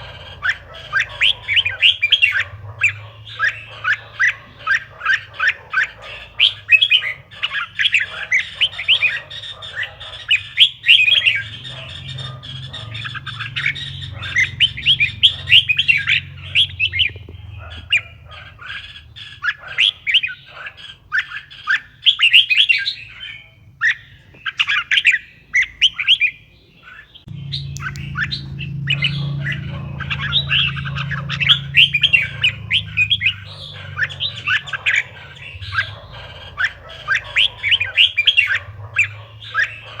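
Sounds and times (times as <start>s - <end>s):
birds singing chirpy whistles: 0.0s - 40.0s
steady low hum: 27.3s - 39.9s.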